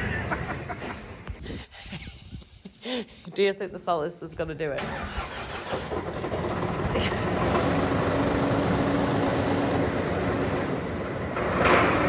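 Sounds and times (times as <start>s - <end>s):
tractor engine running: 4.8s - 12.0s.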